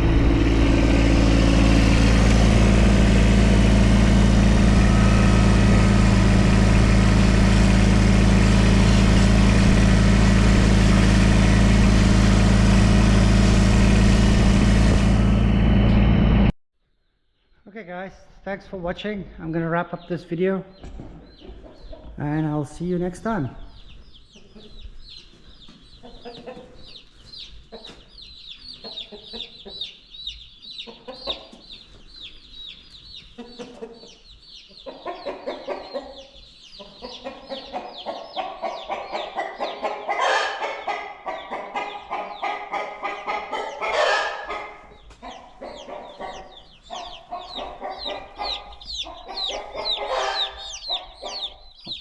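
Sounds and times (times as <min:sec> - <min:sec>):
chicks peeping: 0:19.5 - 0:52.0
chicken calls: 0:20.0 - 0:52.0.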